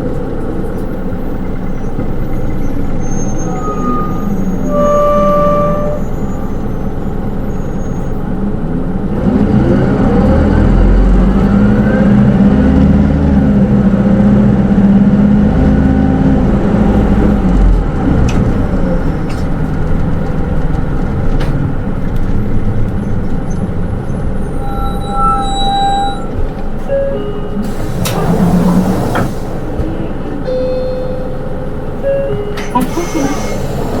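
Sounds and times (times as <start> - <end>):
bus diesel engine whine: 0.0 - 34.0
road noise: 0.0 - 34.0
short electronic chime: 24.6 - 26.3, 30.5 - 31.3.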